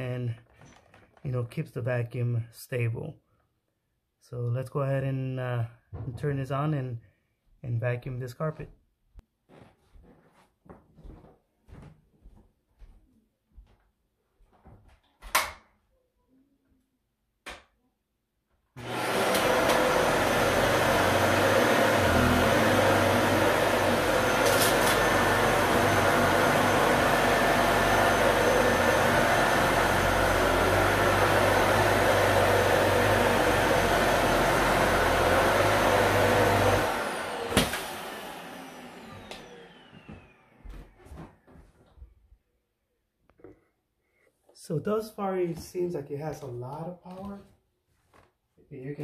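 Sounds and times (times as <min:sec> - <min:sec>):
vacuum cleaner running: 0:18.8 - 0:41.6
motor winding down whine: 0:36.6 - 0:40.6.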